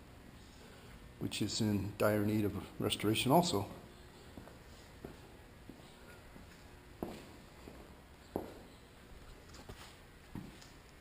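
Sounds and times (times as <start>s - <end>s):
faint footsteps: 4.0s - 11.0s.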